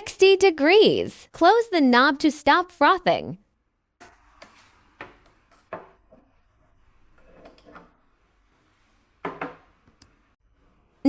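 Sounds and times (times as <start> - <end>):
objects knocking: 4.0 - 6.5, 9.0 - 10.0
objects rubbing: 4.0 - 10.4.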